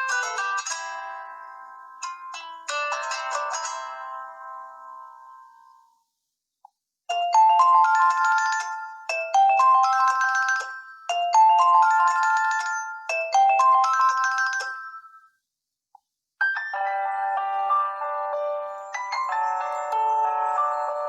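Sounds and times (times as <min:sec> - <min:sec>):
chiming phone ringtone: 0:07.1 - 0:15.4, 0:16.6 - 0:21.0
different phone ringtone: 0:07.1 - 0:15.4, 0:16.7 - 0:21.0.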